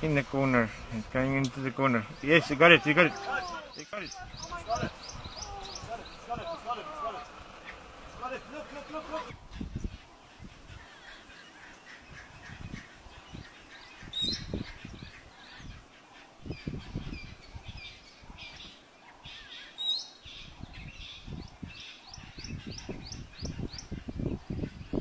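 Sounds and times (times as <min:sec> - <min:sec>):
low rumbling: 0:00.0 - 0:09.9
birds chirping and calling: 0:00.0 - 0:25.0.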